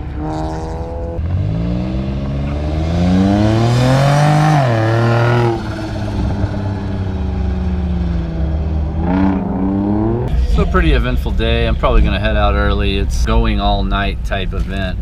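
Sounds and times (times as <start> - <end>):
sports car engine accelerating past: 0.0 - 10.3
low engine drone: 0.0 - 15.0.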